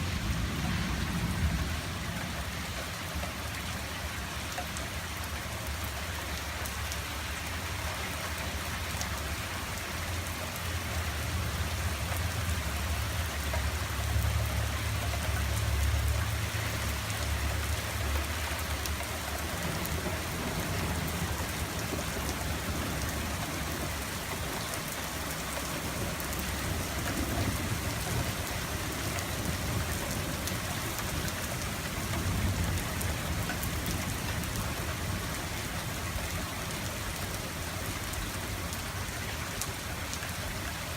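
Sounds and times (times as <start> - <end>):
distant thunder rumbling: 0.0 - 3.8, 19.5 - 36.8
rain pattering: 0.0 - 40.9.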